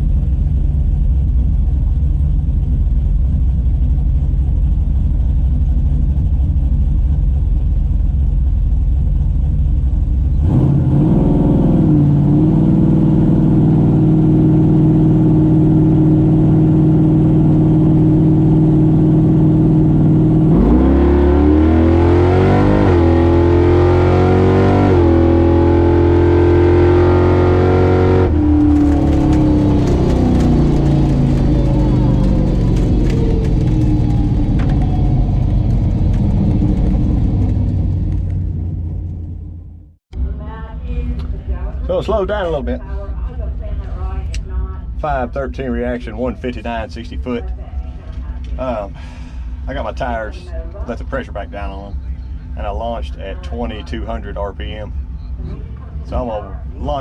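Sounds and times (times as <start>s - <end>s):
drag car engine revving: 9.2s - 39.8s.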